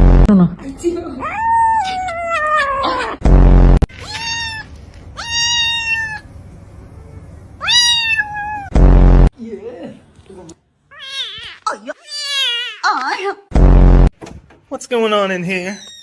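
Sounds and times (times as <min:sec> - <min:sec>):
cat meowing: 0:01.2 - 0:03.2, 0:03.9 - 0:06.3, 0:07.6 - 0:08.7, 0:10.9 - 0:12.9
loud buzzy burst: 0:03.2 - 0:03.9, 0:08.7 - 0:09.3, 0:13.5 - 0:14.1.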